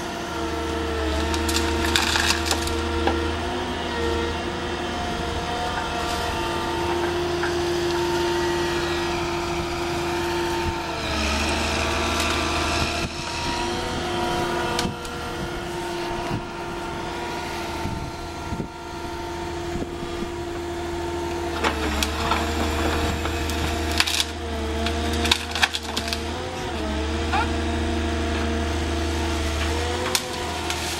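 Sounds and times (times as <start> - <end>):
excavator diesel engine and hydraulics: 0.0 - 30.9
wood cracking and splintering: 0.4 - 3.9, 21.3 - 30.9.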